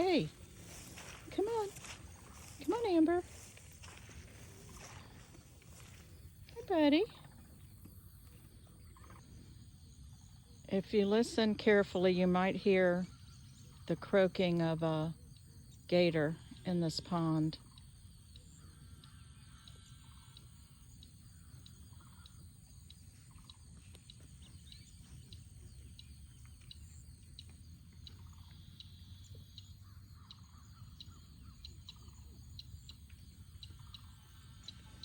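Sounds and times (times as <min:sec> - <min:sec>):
steady low rumble: 0:00.0 - 0:07.7.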